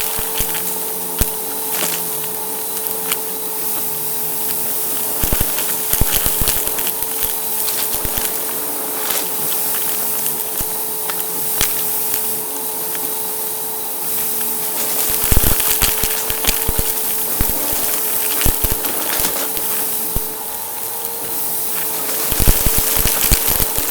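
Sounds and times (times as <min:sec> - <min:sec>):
debris crackling in vacuum: 0:00.0 - 0:23.9
vacuum cleaner running: 0:00.0 - 0:23.9.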